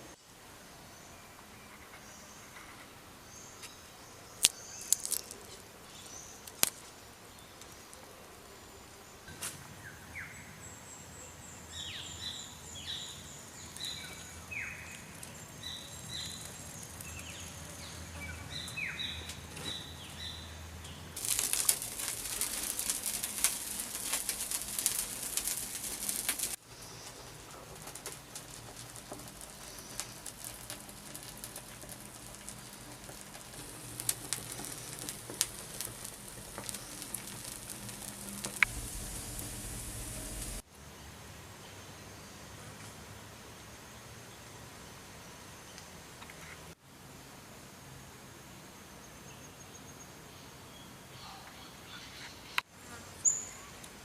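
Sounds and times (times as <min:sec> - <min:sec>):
loud crackling hiss: 0:04.2 - 0:09.1, 0:11.7 - 0:19.4, 0:21.1 - 0:40.7
birds chirping: 0:09.8 - 0:40.6.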